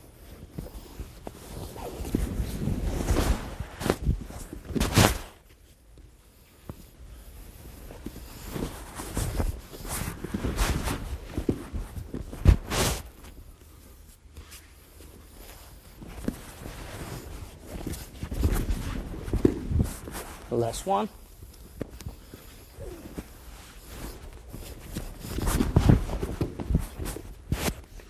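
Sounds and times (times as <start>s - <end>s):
cloth rustling: 0.0s - 28.0s
bodies thudding on mat: 8.0s - 13.3s, 16.0s - 20.5s, 21.8s - 27.9s.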